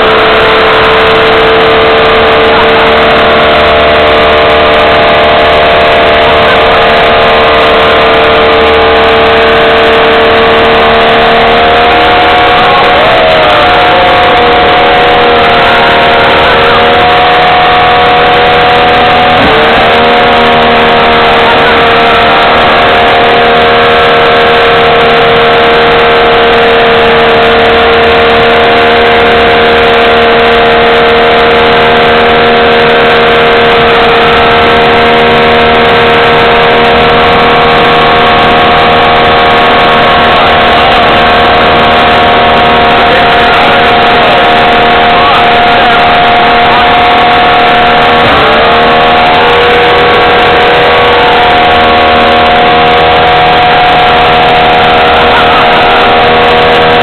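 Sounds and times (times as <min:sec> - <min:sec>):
engine revving at high revs: 0:00.0 - 0:57.0.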